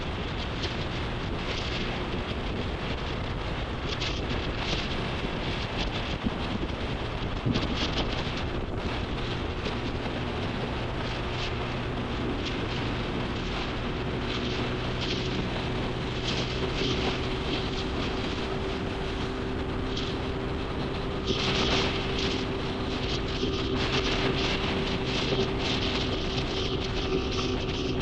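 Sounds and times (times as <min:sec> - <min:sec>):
motorcycle engine cruising: 0:00.0 - 0:28.0
road noise: 0:00.0 - 0:28.0
wind rushing: 0:00.0 - 0:28.0.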